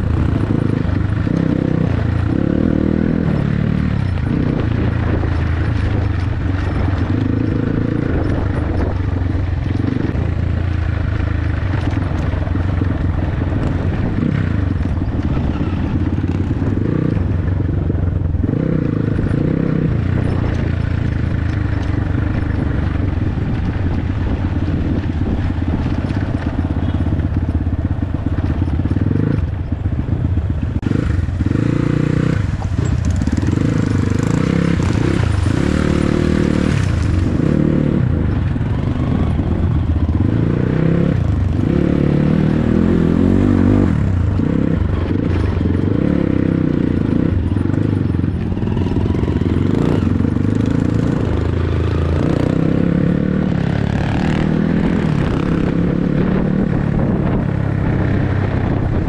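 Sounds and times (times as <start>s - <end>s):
dirt bike engine revving: 0.0s - 17.8s, 30.7s - 58.8s.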